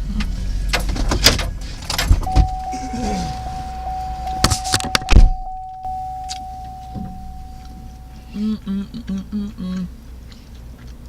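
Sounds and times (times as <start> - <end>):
car door shutting: 0.7 - 7.5
steady high tone: 2.3 - 8.6.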